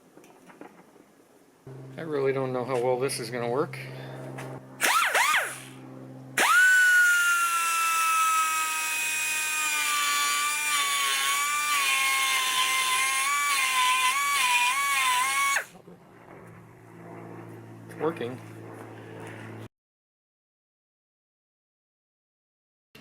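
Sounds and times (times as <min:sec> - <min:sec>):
high-speed cutting tool whining: 0:04.7 - 0:15.7.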